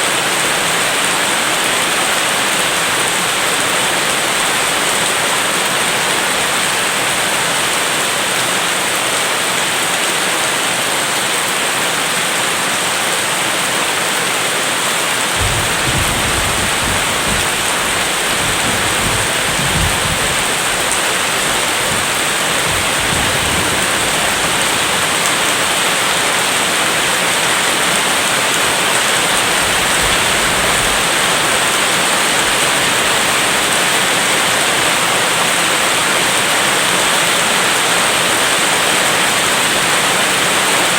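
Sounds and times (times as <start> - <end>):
steady rain: 0.0 - 40.9
low rumble of thunder: 15.4 - 25.0.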